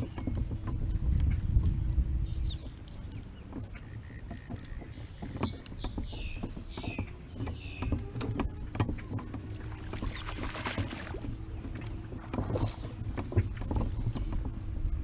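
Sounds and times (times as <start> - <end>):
boat low rumble: 0.0 - 15.0
steady low hum: 0.0 - 15.0
knocks and clatter: 3.5 - 14.7.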